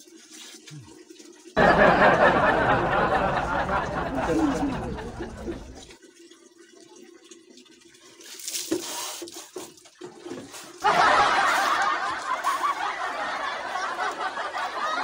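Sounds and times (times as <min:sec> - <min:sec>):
water splashing on concrete floor: 0:08.0 - 0:13.0.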